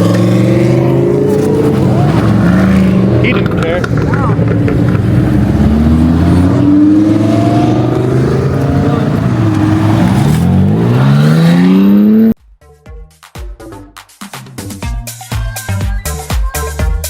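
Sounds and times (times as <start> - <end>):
car engine accelerating hard: 0.0 - 12.4.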